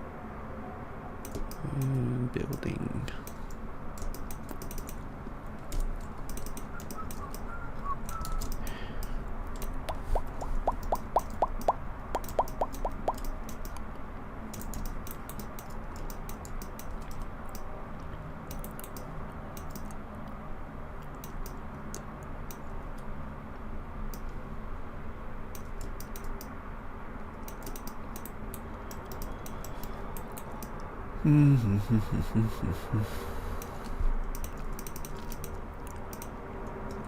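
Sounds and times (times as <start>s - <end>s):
steady low hum: 0.0s - 37.0s
evenly spaced ticks: 1.2s - 20.4s, 21.0s - 23.1s, 25.5s - 26.6s, 27.2s - 30.9s, 33.1s - 37.0s
computer keyboard typing: 3.2s - 5.0s, 5.7s - 7.5s, 8.1s - 13.8s, 14.5s - 17.7s, 18.5s - 20.0s, 25.6s - 26.5s, 27.4s - 30.8s, 33.6s - 37.0s.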